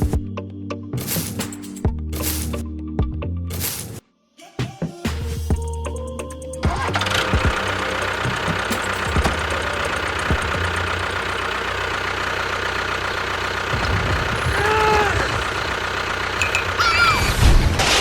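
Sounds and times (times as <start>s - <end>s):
tractor engine knocking idle: 5.5s - 16.8s.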